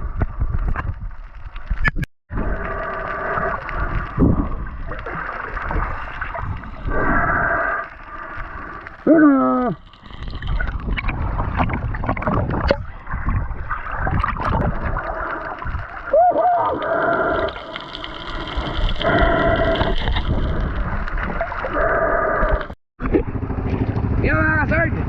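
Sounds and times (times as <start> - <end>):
muffled water gurgling: 0.0 - 24.0.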